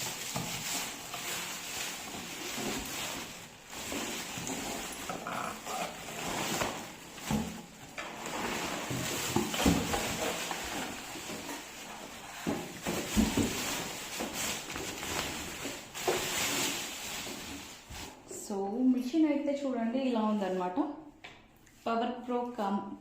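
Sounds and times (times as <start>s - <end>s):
packaging rustling: 0.0s - 18.3s.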